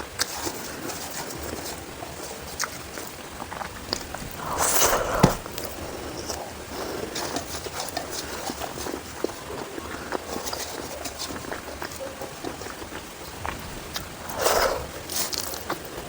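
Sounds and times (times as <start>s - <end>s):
rustling noise: 3.6s - 9.2s
chewing clicks and smacks: 7.1s - 16.0s.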